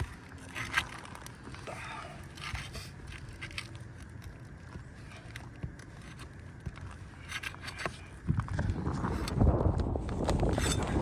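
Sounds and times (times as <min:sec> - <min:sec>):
shingles scraping and clicking: 0:00.0 - 0:11.0
wind rumble on microphone: 0:06.8 - 0:11.0.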